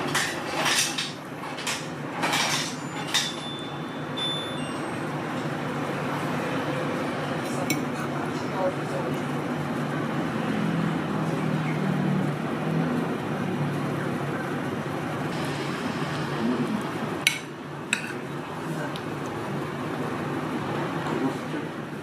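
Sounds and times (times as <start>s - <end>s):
street traffic: 4.5s - 22.0s
dishes clinking: 17.3s - 18.2s.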